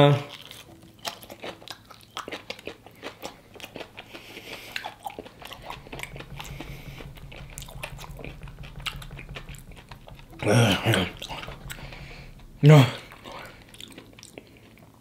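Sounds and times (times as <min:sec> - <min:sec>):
crunchy chewing of fried chicken: 0:00.0 - 0:05.5
low hum: 0:03.2 - 0:14.4.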